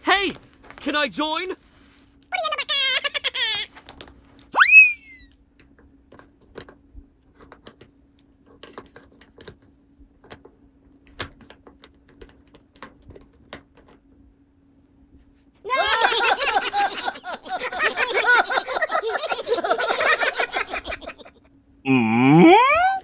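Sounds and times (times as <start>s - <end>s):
cartoon whistle sweep: 4.6s - 5.3s.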